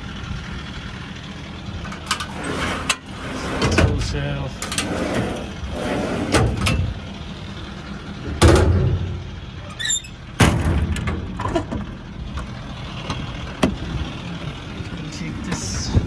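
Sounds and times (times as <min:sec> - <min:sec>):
steady low rumble: 0:00.0 - 0:16.0
truck doors shutting: 0:01.6 - 0:16.0.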